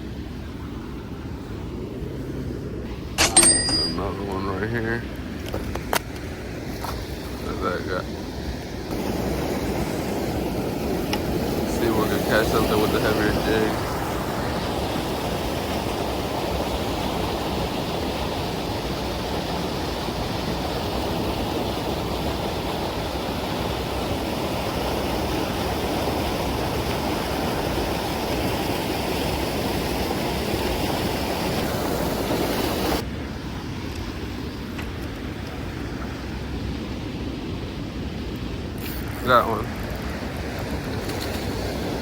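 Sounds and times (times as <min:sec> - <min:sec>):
flowing water rushing: 0:00.0 - 0:42.0.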